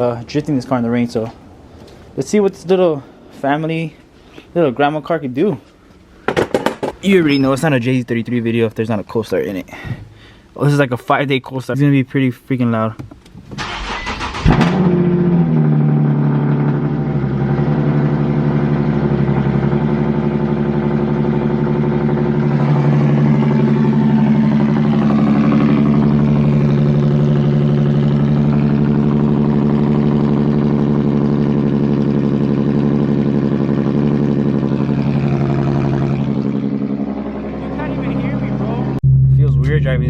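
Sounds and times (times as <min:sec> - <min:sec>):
loud car engine idling: 0:13.8 - 0:40.0.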